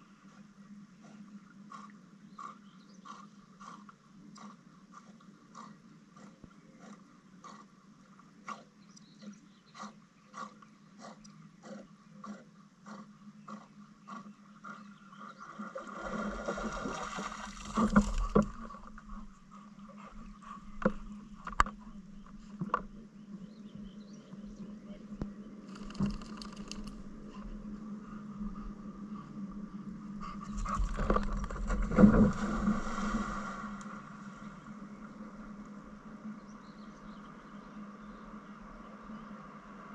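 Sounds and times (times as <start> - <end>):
water rushing: 15.8 - 18.5, 31.0 - 34.7.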